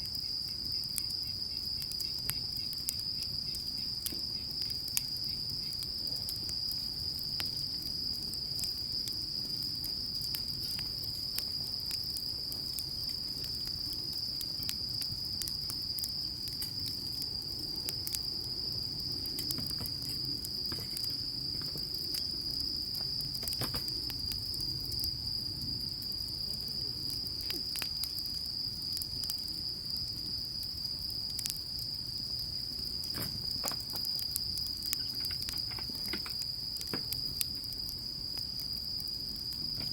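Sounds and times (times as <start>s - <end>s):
insects chirring: 0.0s - 39.9s
sharp clicks and crackles: 33.1s - 37.5s.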